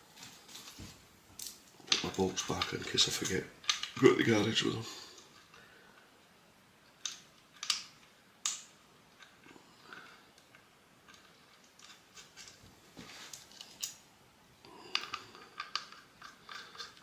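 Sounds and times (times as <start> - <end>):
small metal parts clicking: 1.4 - 4.0, 6.9 - 12.6, 13.3 - 14.0, 14.8 - 17.0.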